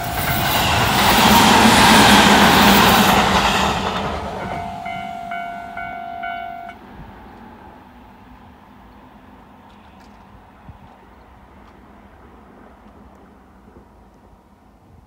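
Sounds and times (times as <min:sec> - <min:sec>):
electric train passing: 0:00.0 - 0:14.9
intermittent ringing tone: 0:04.4 - 0:06.8.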